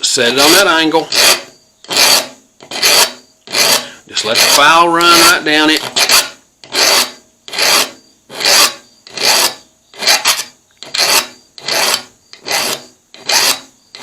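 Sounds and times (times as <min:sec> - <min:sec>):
metal file rasping on steel: 0:00.3 - 0:14.0.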